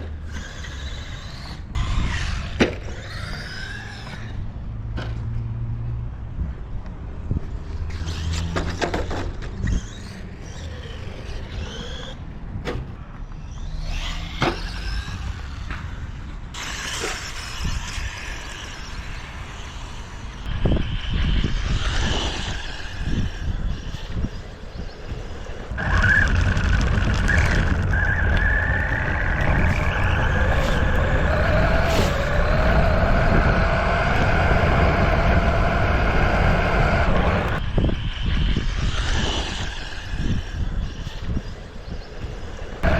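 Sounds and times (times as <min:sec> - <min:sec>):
electric motor whining: 0:13.4 - 0:42.9.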